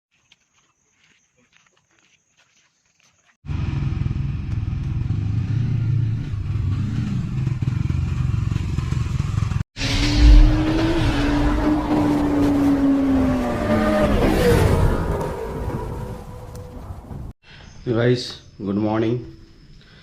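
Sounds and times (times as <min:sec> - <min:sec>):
engine low rumble: 0:03.5 - 0:13.8.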